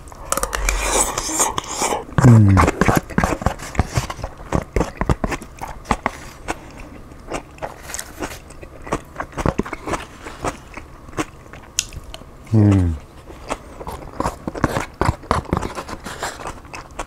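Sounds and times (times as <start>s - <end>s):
low falling hum: 0.0s - 2.8s
chewing and mouth smacking: 0.1s - 17.0s.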